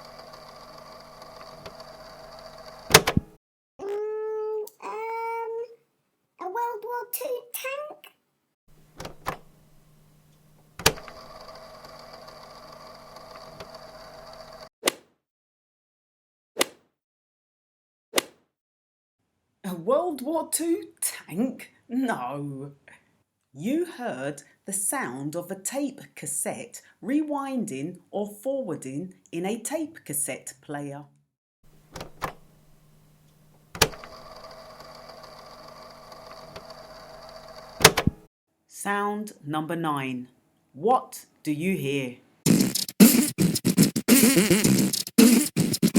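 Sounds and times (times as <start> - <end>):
tape motor whirring: 0.0 - 3.0, 10.8 - 14.7, 33.7 - 38.1
tape deck button clunk: 2.9 - 3.3, 37.8 - 38.2.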